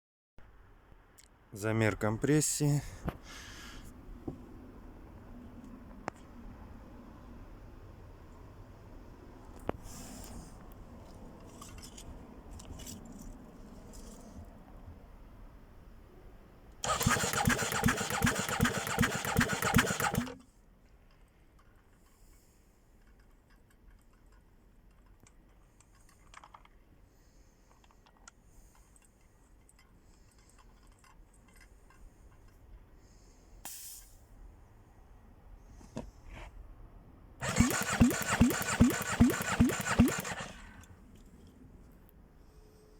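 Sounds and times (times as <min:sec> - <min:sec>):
engine cranking on starter motor: 0:16.8 - 0:20.4, 0:37.4 - 0:41.0.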